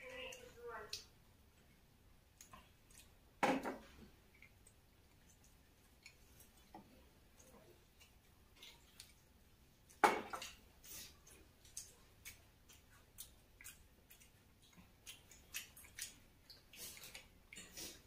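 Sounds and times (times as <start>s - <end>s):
crisp chewing crunches: 10.9s - 18.0s.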